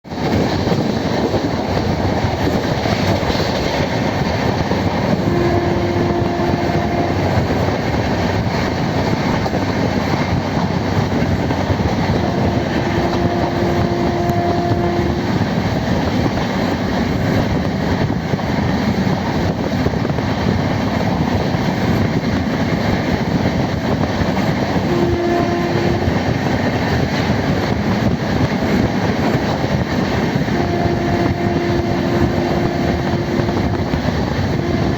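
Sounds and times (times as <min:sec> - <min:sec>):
train wheels rumbling and rattling: 0:00.0 - 0:34.9
short steady tone: 0:05.0 - 0:07.8, 0:12.0 - 0:15.3, 0:24.8 - 0:26.7, 0:30.5 - 0:34.9.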